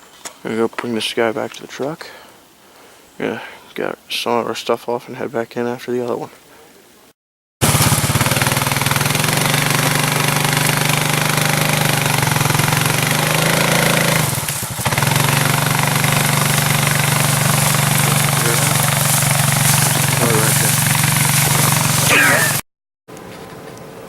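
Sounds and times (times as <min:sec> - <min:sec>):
vehicle engine running: 0:07.6 - 0:22.6.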